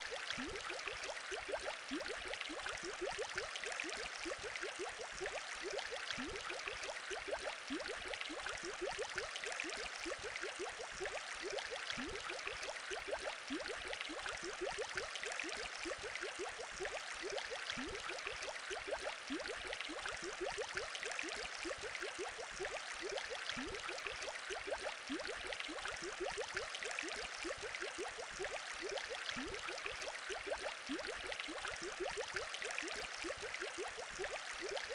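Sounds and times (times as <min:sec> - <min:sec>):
aquarium water bubbling: 0:00.0 - 0:34.9.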